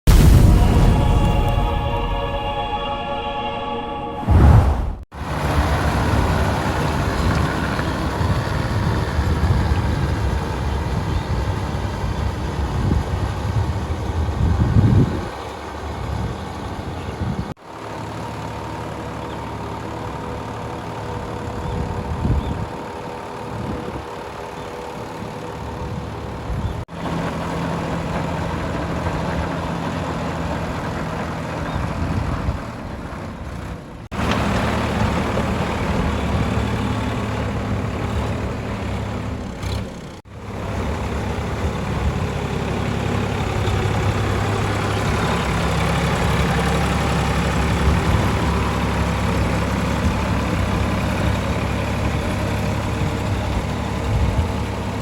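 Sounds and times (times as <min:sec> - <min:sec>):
tractor diesel engine running: 0:05.1 - 0:55.0.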